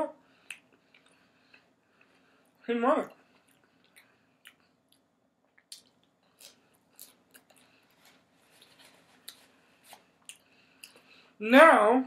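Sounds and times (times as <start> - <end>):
faint chewing: 0.4 - 11.3.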